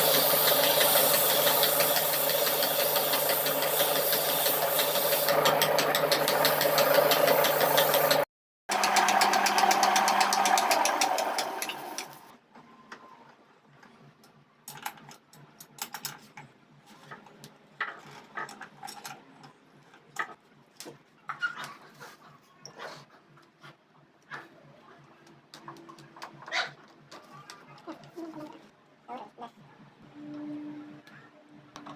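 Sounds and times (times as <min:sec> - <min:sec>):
power tool chattering: 0:00.0 - 0:12.3.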